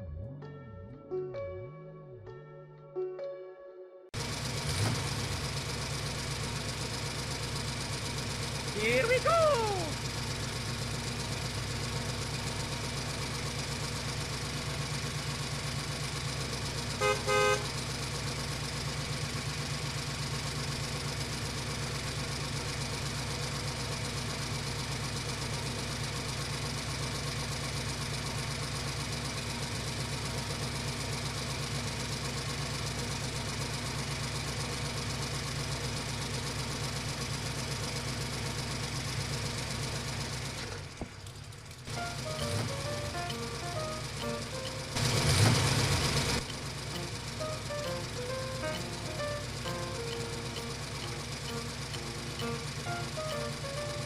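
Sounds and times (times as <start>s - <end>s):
toy vehicle engine: 8.6s - 13.0s, 41.8s - 54.0s
toy horn toot: 17.0s - 17.7s.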